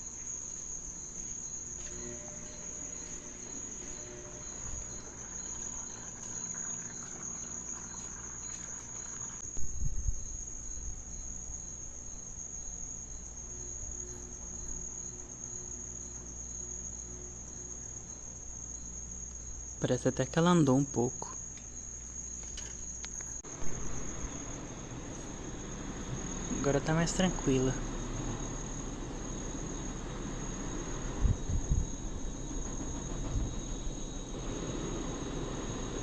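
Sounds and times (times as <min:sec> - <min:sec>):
washing machine spinning: 0:00.0 - 0:09.4, 0:23.4 - 0:36.0
crickets chirping: 0:00.0 - 0:36.0.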